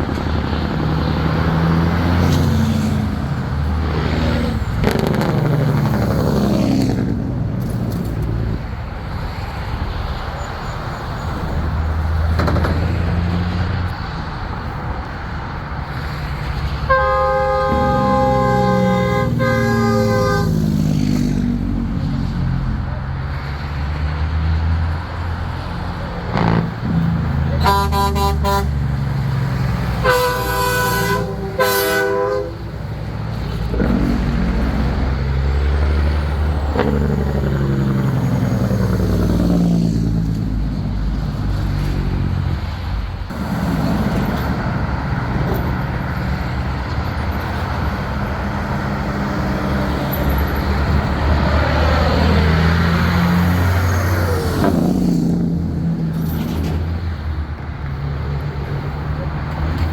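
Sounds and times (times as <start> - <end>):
diesel truck engines rumbling past: 0.0 - 59.9
truck air horn blasts: 16.8 - 21.0, 26.3 - 29.0, 29.8 - 34.1, 36.7 - 37.6.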